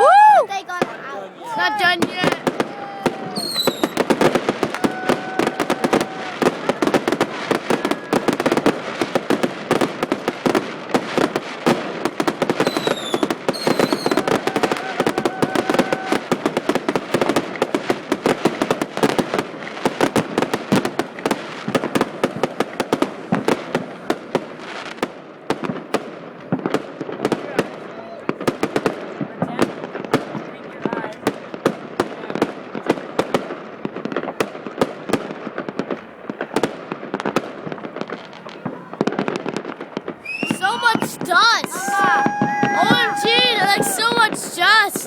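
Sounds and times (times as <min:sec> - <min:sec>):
fireworks crackling: 0:00.0 - 0:45.0
fireworks whistling: 0:01.8 - 0:10.6, 0:12.4 - 0:17.4, 0:37.9 - 0:45.0.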